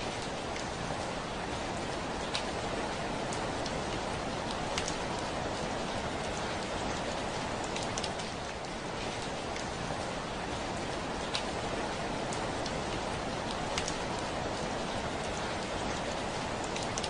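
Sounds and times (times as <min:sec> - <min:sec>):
heavy rain on a window: 0:00.0 - 0:17.0
sharp tick of a raindrop: 0:02.2 - 0:02.5, 0:03.3 - 0:05.4, 0:06.2 - 0:09.7, 0:11.2 - 0:11.5, 0:12.3 - 0:14.3, 0:15.3 - 0:17.0.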